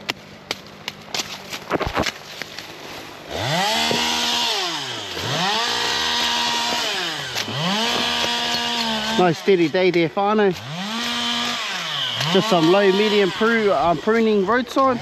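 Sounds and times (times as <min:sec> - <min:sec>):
chainsaw engine revving: 0:03.2 - 0:15.0.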